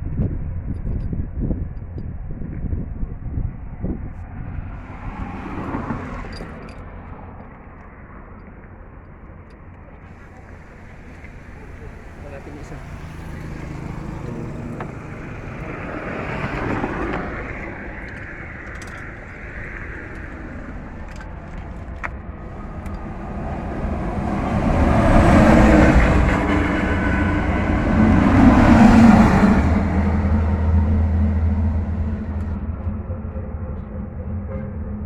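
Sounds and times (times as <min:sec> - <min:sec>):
vehicle engine running: 0:10.0 - 0:35.0.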